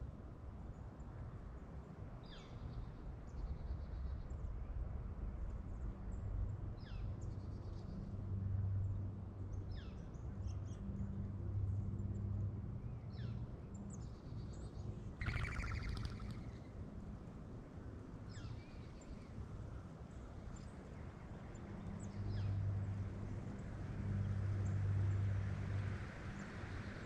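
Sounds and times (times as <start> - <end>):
harsh bird call: 15.2 - 16.4
bird call sweeping downward: 15.2 - 16.6
high bird chirps and trills: 15.2 - 16.6.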